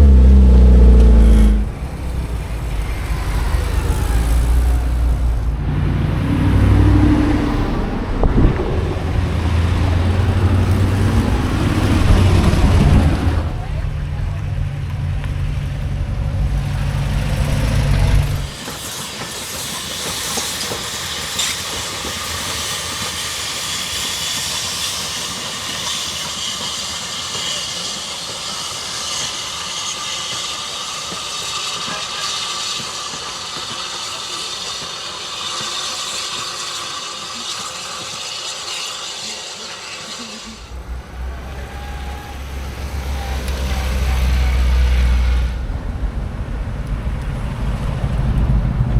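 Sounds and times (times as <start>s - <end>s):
low rumble: 0.0s - 18.5s, 40.7s - 48.9s
steam hissing: 0.0s - 48.9s.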